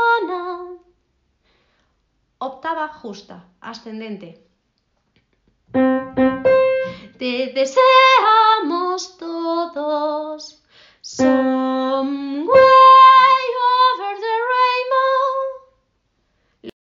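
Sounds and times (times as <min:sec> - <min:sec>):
woman singing: 0:00.0 - 0:00.8, 0:06.9 - 0:15.7.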